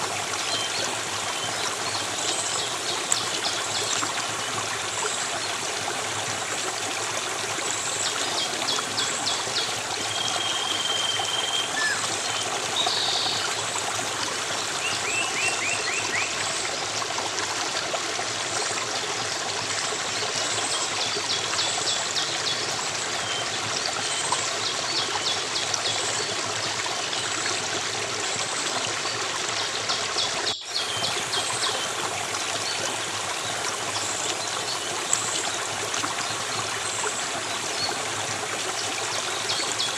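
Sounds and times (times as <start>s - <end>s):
bird whistle: 10.4s - 12.0s.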